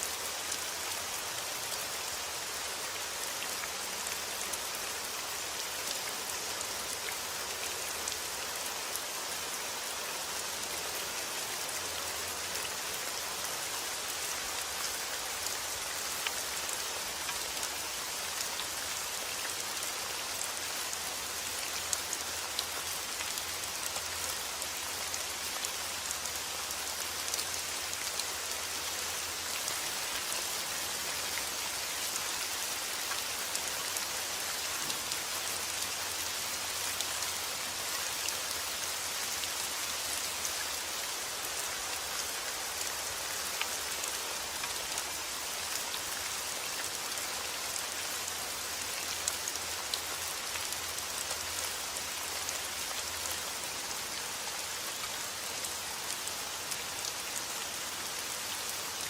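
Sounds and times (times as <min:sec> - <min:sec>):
steady rain on a surface: 0:00.0 - 0:59.0.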